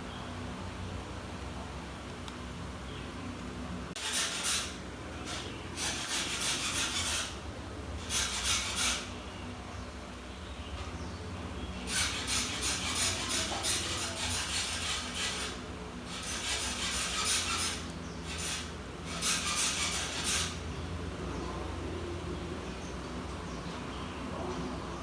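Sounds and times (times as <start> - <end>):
rapid scraping on laptop parts: 4.0 - 7.4, 8.0 - 9.2, 11.8 - 20.7.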